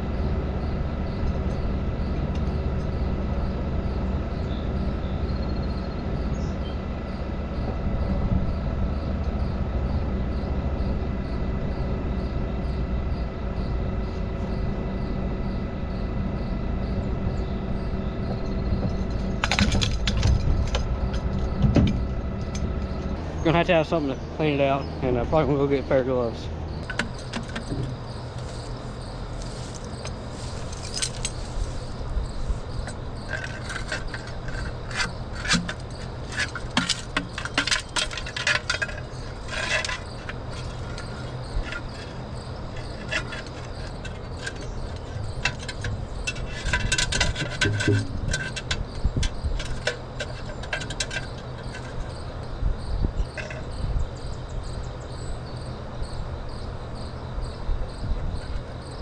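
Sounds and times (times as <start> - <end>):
engine humming: 0.0 - 59.0
insects chirping: 0.0 - 59.0
metallic clinks and rattles: 18.4 - 23.2, 26.8 - 52.5, 53.2 - 53.8.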